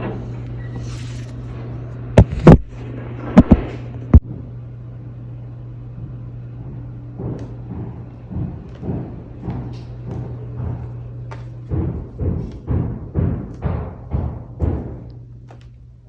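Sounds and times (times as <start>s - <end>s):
steady low hum: 0.0s - 16.0s
construction banging: 5.8s - 15.3s.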